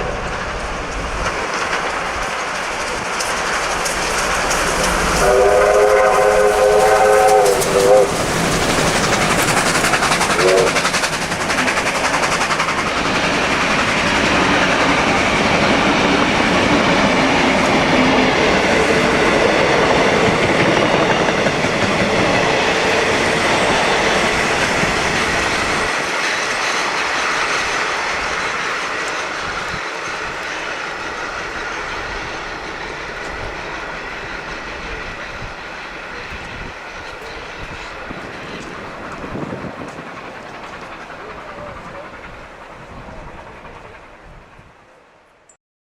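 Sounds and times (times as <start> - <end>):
wheels clacking over rail joints: 0.0 - 44.2
steam train running: 0.0 - 45.4
steam locomotive whistle: 4.8 - 11.0.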